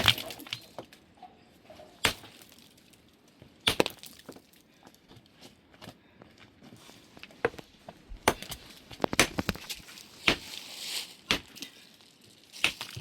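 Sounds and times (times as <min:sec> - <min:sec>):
sharp knocks and cracks: 0:00.0 - 0:01.0, 0:02.0 - 0:02.7, 0:03.6 - 0:04.5, 0:07.4 - 0:10.6, 0:11.3 - 0:11.7, 0:12.6 - 0:13.0
crunching rustle: 0:08.4 - 0:13.0.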